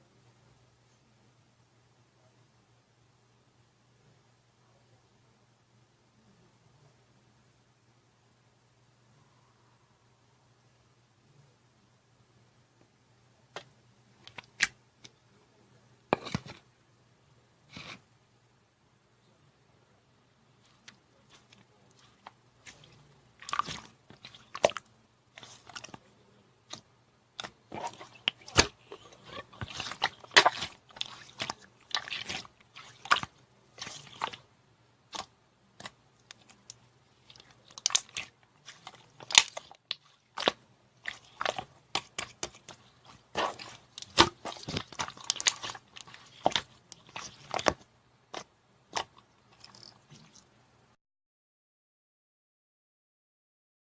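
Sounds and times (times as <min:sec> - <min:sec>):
slime squished by hand: 0:20.7 - 0:26.0, 0:27.4 - 0:34.4, 0:35.1 - 0:50.4.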